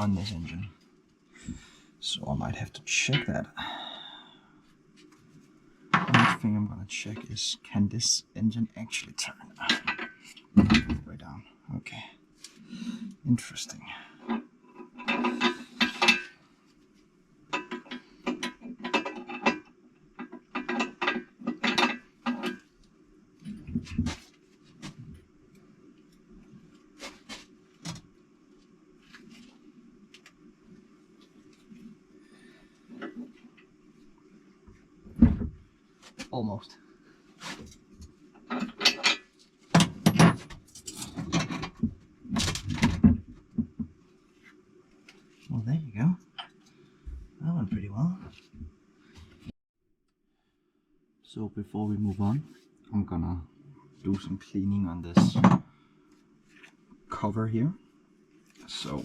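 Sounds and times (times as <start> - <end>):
metal tools clanking: 38.4 - 41.8.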